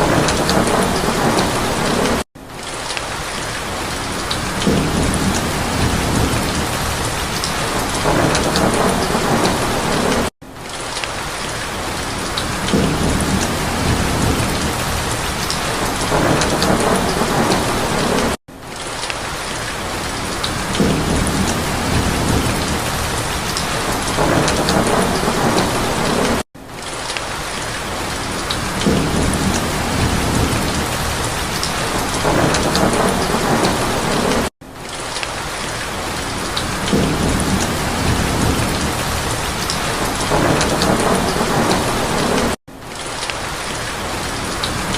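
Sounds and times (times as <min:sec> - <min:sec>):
thunder rumbling: 0:00.0 - 0:02.2, 0:04.2 - 0:10.3, 0:12.4 - 0:18.4, 0:20.3 - 0:26.4, 0:28.5 - 0:34.5, 0:36.4 - 0:42.6
heavy rain: 0:00.0 - 0:44.9.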